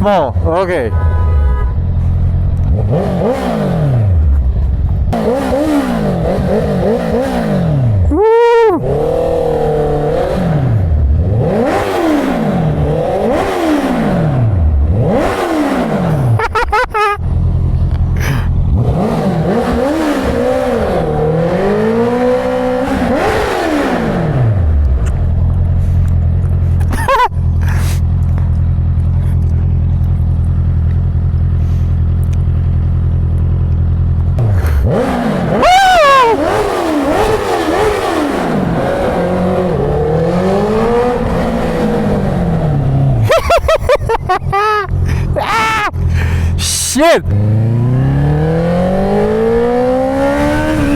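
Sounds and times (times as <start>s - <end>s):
engine accelerating and shifting: 1.6s - 50.9s
sharp engine rev: 2.7s - 4.2s, 5.1s - 8.0s, 8.8s - 16.4s, 34.4s - 43.7s, 45.1s - 50.9s
engine idling: 24.8s - 34.9s.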